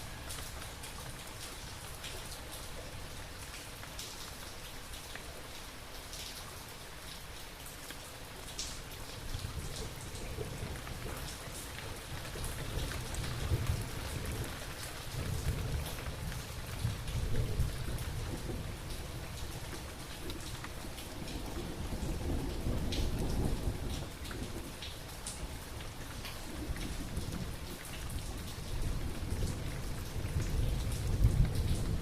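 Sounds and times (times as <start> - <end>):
rain falling: 0.0 - 32.0
low rumble of thunder: 9.2 - 32.0.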